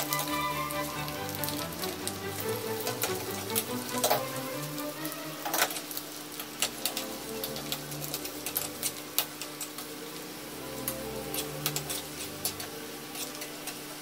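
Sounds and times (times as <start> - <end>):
nuts sizzling in hot fat: 0.0 - 14.0
soft background music: 0.0 - 14.0
metal spoon scraping a pan: 10.9 - 13.9.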